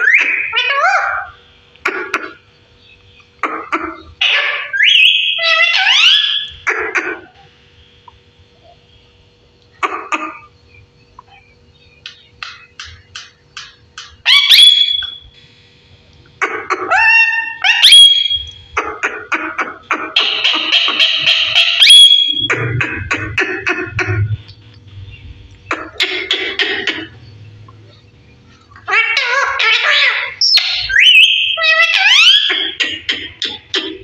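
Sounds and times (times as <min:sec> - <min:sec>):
parrot chirp: 0:00.0 - 0:07.5, 0:09.8 - 0:15.3, 0:16.4 - 0:34.0
parrot screech: 0:04.2 - 0:06.5, 0:16.8 - 0:18.4, 0:28.8 - 0:32.8
parrot whistles: 0:04.3 - 0:06.5, 0:14.2 - 0:15.3, 0:16.9 - 0:18.6, 0:20.2 - 0:22.5, 0:29.2 - 0:32.5.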